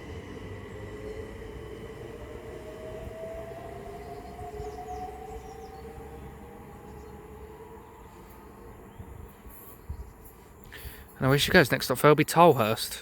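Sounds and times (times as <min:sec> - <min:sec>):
electric train motors whining: 0:00.0 - 0:09.5.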